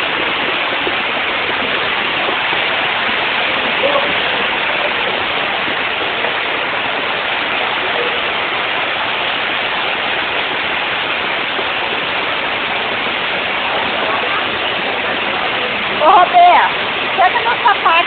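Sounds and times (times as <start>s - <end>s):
rushing floodwater: 0.0s - 18.0s.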